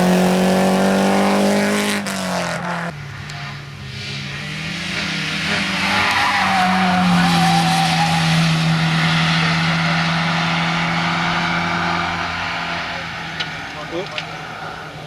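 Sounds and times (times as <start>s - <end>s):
race car engine at high revs: 0.0s - 15.0s.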